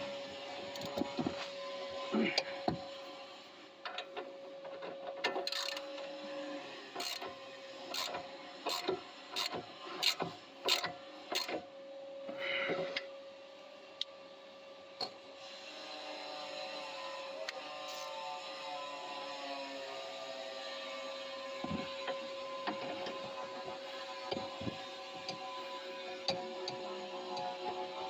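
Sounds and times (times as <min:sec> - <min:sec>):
wrench ratcheting clicks: 0:05.4 - 0:05.8.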